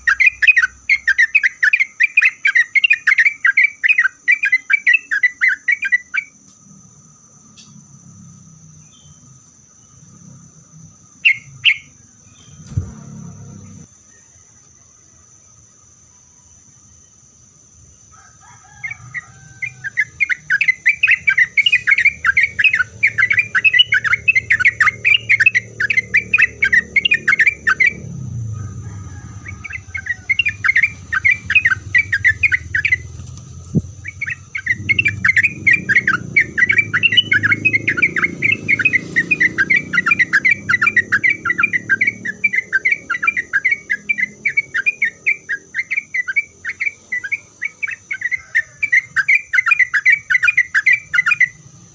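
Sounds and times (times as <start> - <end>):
bulbul singing rapid notes: 19.8 - 51.6.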